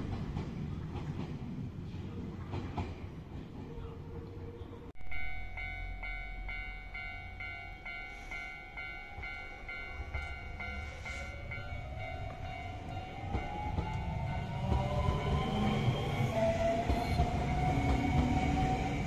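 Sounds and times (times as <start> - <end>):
stopped train low rumble: 0.0 - 19.0
electronic bell tone: 5.0 - 13.6
steady tone: 5.0 - 15.3
electric train running in: 5.1 - 19.0.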